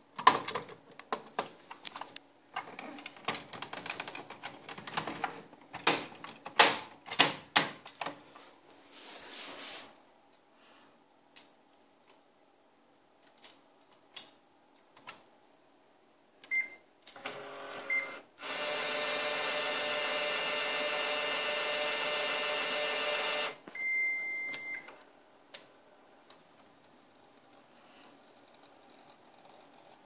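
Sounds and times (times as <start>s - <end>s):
printer beeps: 16.5s - 25.0s
printer motors running: 17.2s - 23.6s.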